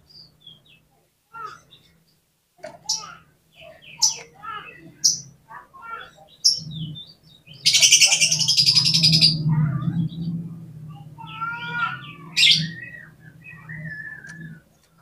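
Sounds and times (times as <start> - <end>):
songbird singing: 0.0 - 15.0
steady low hum: 6.6 - 15.0.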